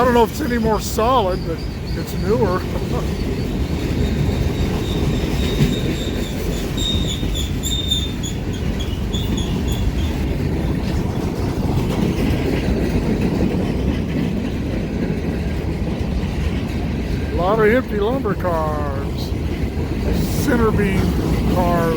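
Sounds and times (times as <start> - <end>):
high pulsing wheel squeal: 0.0 - 10.3
freight cars rumbling and clattering: 0.0 - 21.9.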